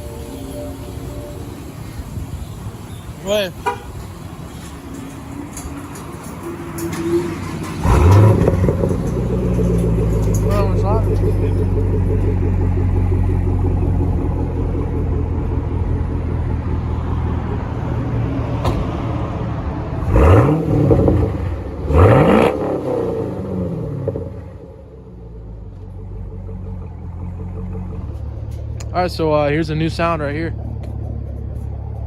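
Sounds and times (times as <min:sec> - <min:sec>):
car engine idling and revving: 0:00.0 - 0:32.0.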